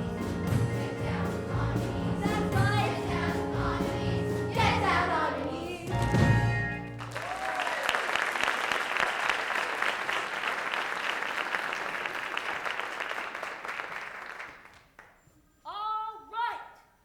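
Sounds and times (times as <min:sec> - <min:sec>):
audience applauding: 0:06.9 - 0:15.1.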